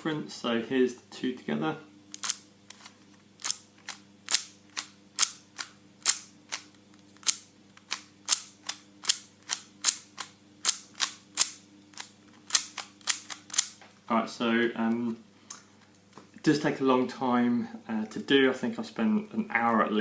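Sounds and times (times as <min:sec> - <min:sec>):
puzzle cube plastic clicks: 0:02.2 - 0:13.8.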